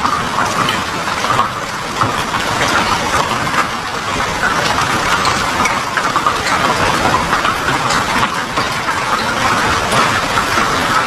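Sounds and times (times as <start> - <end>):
heavy rain on paved road: 0.0 - 11.0.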